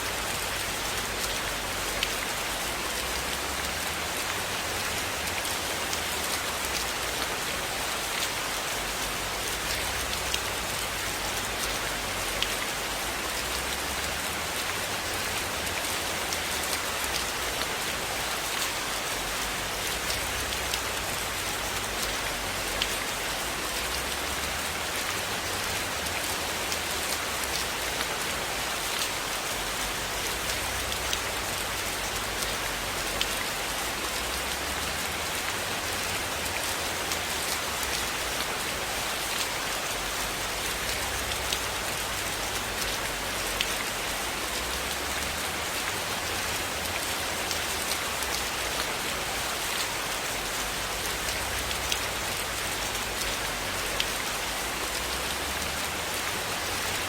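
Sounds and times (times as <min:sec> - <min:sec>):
rain falling on a cabin: 0:00.0 - 0:57.0.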